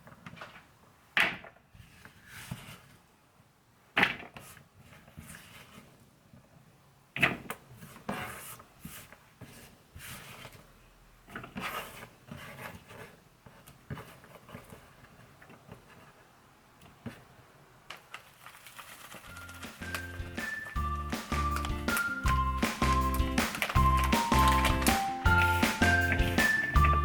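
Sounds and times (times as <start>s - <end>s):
utensils and containers clattering: 18.7s - 27.0s.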